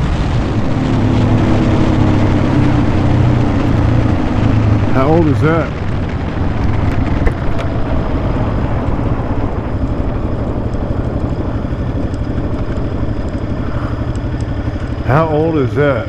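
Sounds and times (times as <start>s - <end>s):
dirt bike engine idling: 0.0s - 16.0s.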